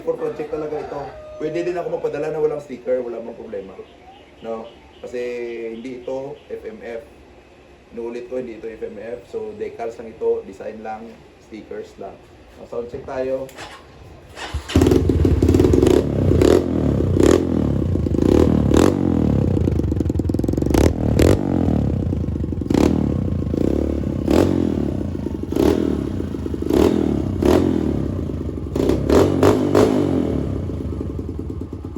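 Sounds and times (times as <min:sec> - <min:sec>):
exhaust cracks: 0:13.4 - 0:31.9
dirt bike engine revving: 0:13.6 - 0:31.9.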